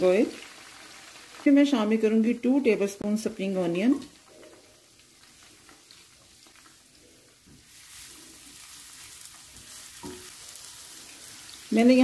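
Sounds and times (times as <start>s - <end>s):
onions sizzling in a frying pan: 0.0s - 12.0s.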